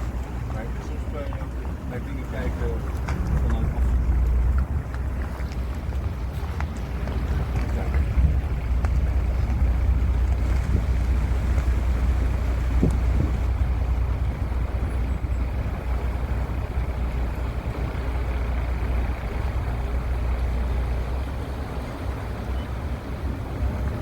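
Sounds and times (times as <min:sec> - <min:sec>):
steady low rumble: 0:00.0 - 0:24.0
wind buffeting the microphone: 0:00.0 - 0:24.0.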